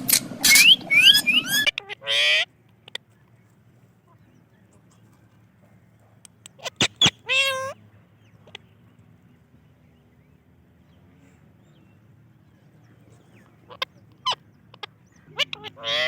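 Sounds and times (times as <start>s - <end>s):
parrot call with rising pitch: 0.0s - 2.5s, 6.6s - 7.8s
parrot squawks: 0.4s - 2.5s, 6.6s - 7.8s, 13.7s - 16.0s.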